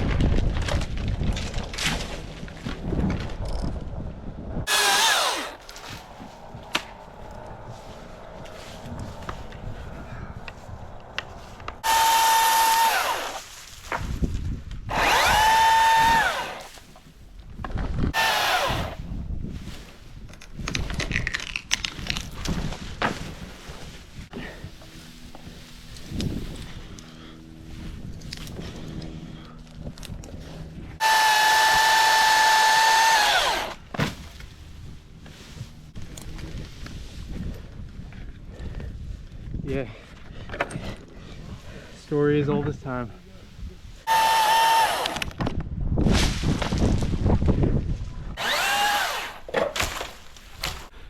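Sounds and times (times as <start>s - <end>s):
chainsaw running: 4.7s - 5.7s, 11.8s - 13.5s, 14.9s - 16.8s, 18.2s - 19.0s, 31.0s - 33.8s, 44.1s - 45.4s, 48.4s - 49.5s.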